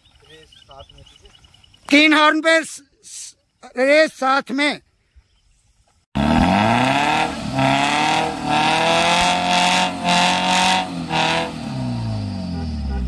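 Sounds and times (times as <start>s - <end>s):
engines revving hard: 6.2s - 13.0s.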